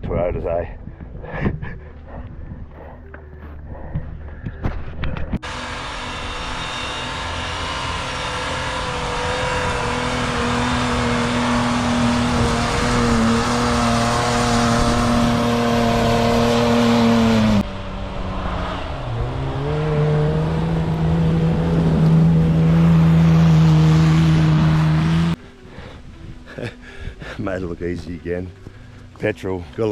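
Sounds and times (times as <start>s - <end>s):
engine revving under load: 5.4s - 25.4s.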